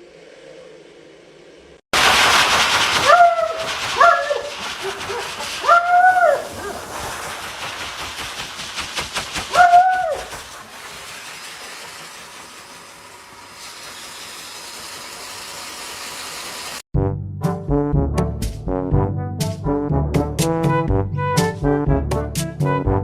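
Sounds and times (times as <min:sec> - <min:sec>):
loud steady rushing hiss: 0:01.0 - 0:16.8
dog howling: 0:03.1 - 0:06.8, 0:09.5 - 0:10.3.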